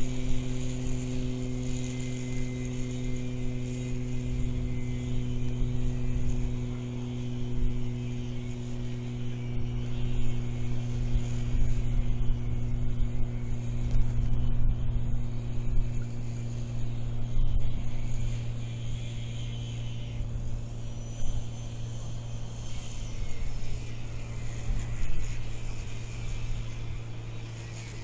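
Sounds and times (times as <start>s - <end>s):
steady machine hum: 0.0s - 28.0s
wind on microphone: 0.0s - 28.0s.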